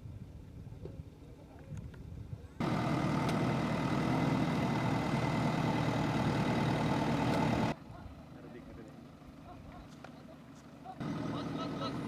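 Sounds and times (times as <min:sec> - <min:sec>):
diesel engine running: 0:02.6 - 0:12.0.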